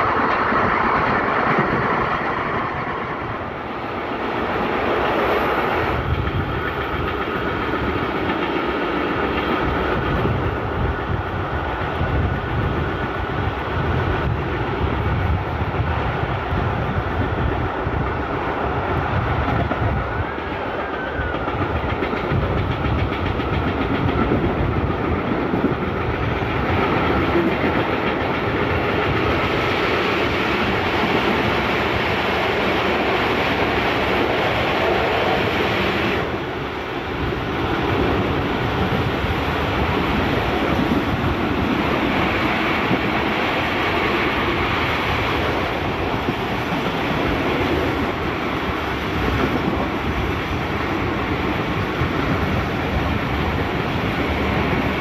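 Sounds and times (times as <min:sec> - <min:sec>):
clickety-clack over rail joints: 0:00.0 - 0:55.0
train wheels rumbling on rails: 0:00.0 - 0:55.0.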